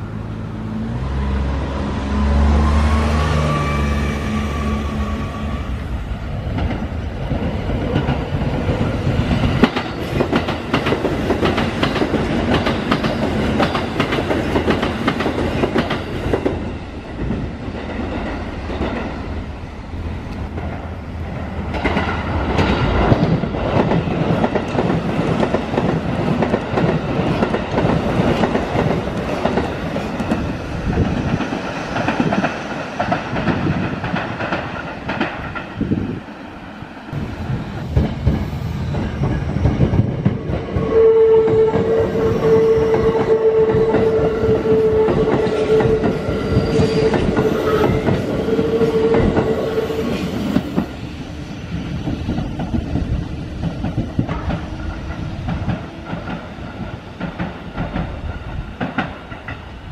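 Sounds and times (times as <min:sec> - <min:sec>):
train wheels clacking over rail joints: 0:06.5 - 0:19.2, 0:21.7 - 0:36.0, 0:37.4 - 0:51.0, 0:51.9 - 0:59.8.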